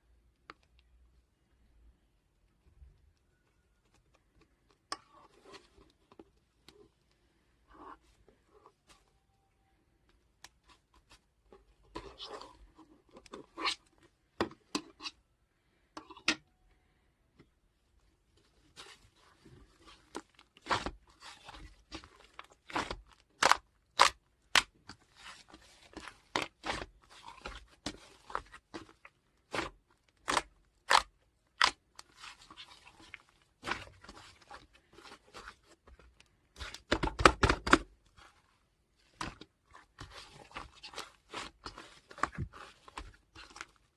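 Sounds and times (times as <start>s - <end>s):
crunchy slime crackling: 18.7s - 43.9s.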